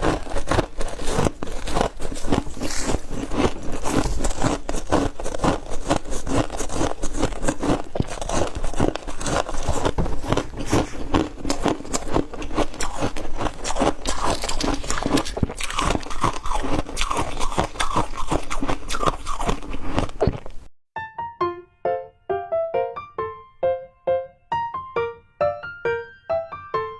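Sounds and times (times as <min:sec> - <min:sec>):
chewing crunchy frost: 0:00.0 - 0:20.6.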